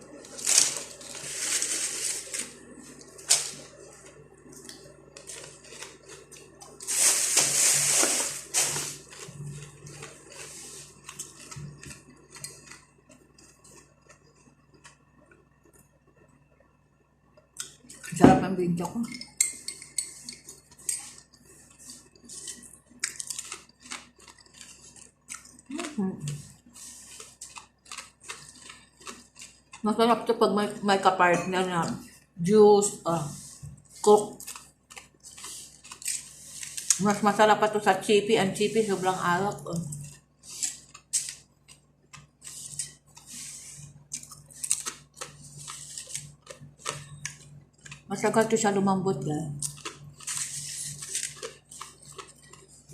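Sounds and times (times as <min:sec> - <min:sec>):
crunchy snack being eaten: 0:20.5 - 0:29.8, 0:33.4 - 0:37.0, 0:39.9 - 0:48.1, 0:49.6 - 0:52.9.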